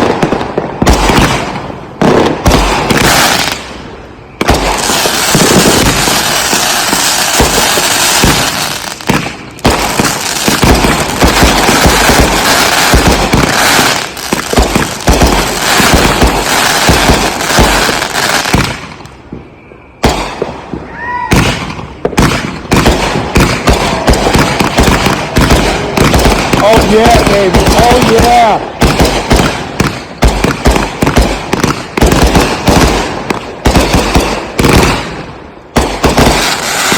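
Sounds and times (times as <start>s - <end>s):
firework crackling: 0.0s - 19.4s, 20.0s - 36.9s
firework booms: 0.0s - 36.9s.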